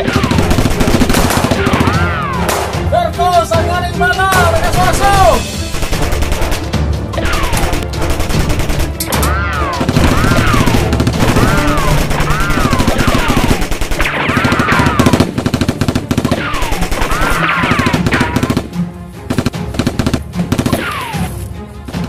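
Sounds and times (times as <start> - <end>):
automatic gunfire bursts: 0.0 - 2.0, 9.8 - 18.7.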